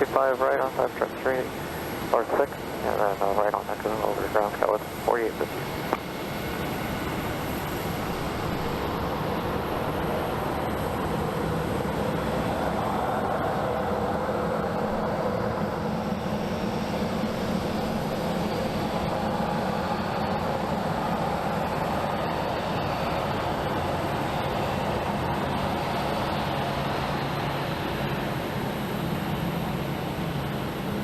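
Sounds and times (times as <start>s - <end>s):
faint high whine: 0.0s - 9.9s
jet engines rumbling: 0.0s - 31.0s.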